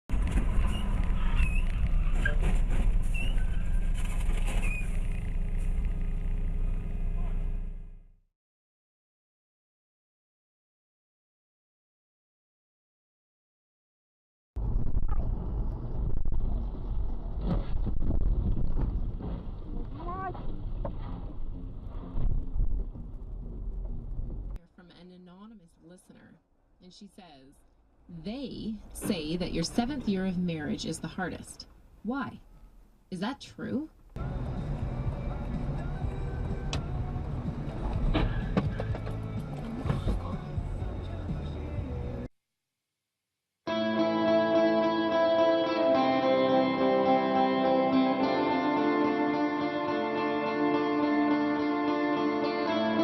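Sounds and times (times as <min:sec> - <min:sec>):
wind and road noise: 0:00.1 - 0:08.0, 0:14.6 - 0:24.6
vehicle driving rumble: 0:00.1 - 0:08.1, 0:14.6 - 0:24.6, 0:34.0 - 0:42.3.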